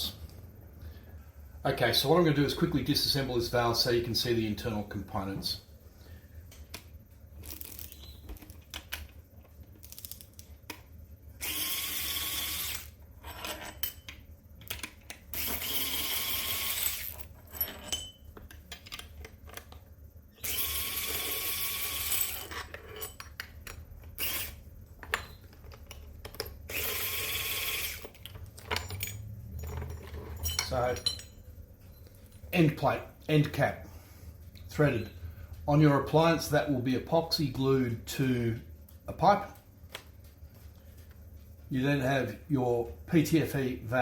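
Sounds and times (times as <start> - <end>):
power drill spinning: 11.4 - 13.0, 15.3 - 17.3, 20.4 - 22.6, 24.2 - 24.6, 26.7 - 28.1.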